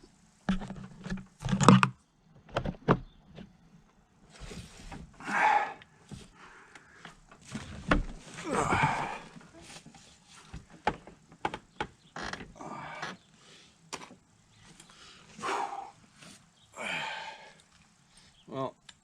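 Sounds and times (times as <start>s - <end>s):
rustling and scraping: 2.5s - 12.5s.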